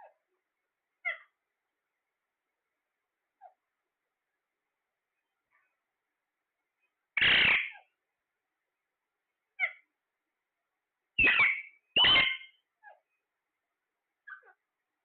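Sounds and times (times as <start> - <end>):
faint parrot chirp: 0.0 - 0.4, 1.0 - 1.4, 3.4 - 3.7, 6.8 - 8.0, 9.5 - 10.0, 11.2 - 13.3, 14.2 - 14.7
parrot giving harsh calls: 7.2 - 7.9, 11.2 - 12.6.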